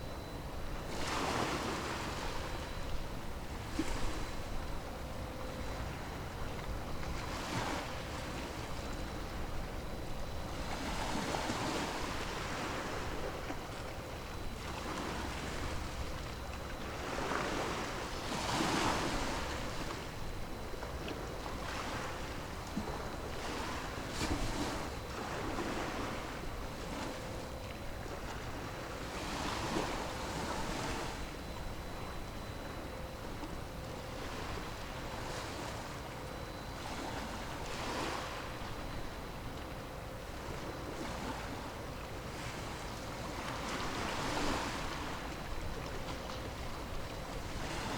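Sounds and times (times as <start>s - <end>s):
wind: 0.0s - 47.9s.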